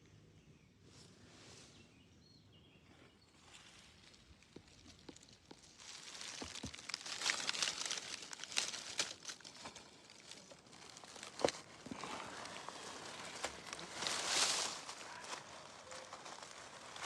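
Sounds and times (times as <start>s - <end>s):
dry leaves and twigs crackling: 3.4s - 17.0s.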